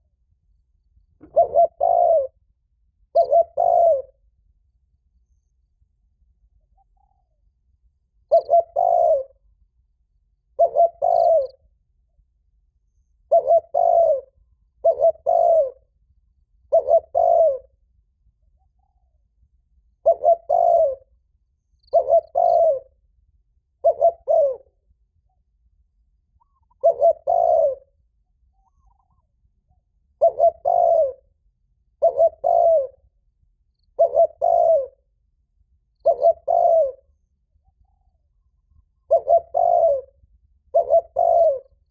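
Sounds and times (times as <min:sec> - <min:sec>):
dove cooing: 0:01.2 - 0:02.4, 0:03.1 - 0:04.2, 0:08.3 - 0:09.5, 0:10.5 - 0:11.6, 0:13.2 - 0:15.9, 0:16.7 - 0:17.7, 0:20.0 - 0:21.1, 0:21.9 - 0:23.0, 0:23.8 - 0:24.7, 0:26.4 - 0:27.9, 0:30.2 - 0:31.3, 0:32.0 - 0:33.0, 0:34.0 - 0:35.1, 0:36.0 - 0:41.9.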